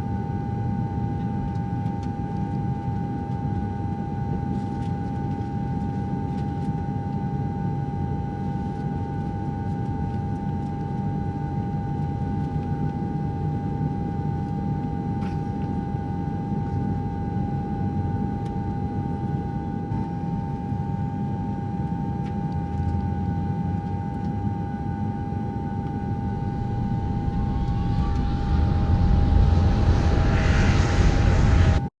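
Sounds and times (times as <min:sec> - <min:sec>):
jet engines in cabin: 0:24.3 - 0:32.0.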